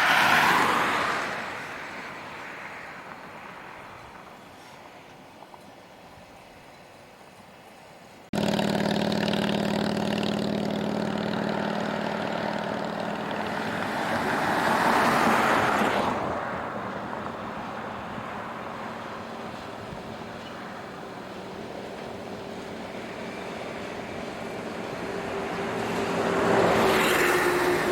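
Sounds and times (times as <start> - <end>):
electric locomotive hum: 8.4 - 27.9
train rushing noise: 9.3 - 27.9.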